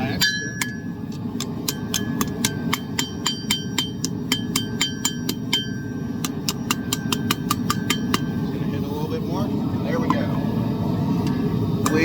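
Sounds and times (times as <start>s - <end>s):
hammer striking metal on anvil: 0.0s - 8.4s.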